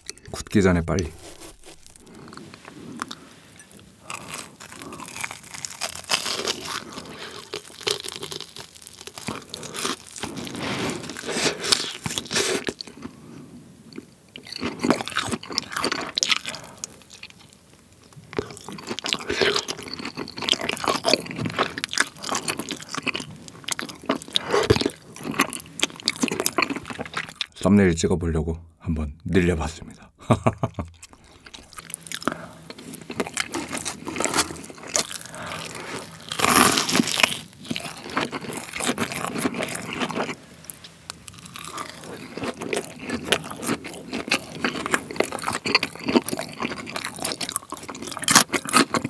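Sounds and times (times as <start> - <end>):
crunching and chewing fried food: 1.2 - 27.6, 30.6 - 49.0.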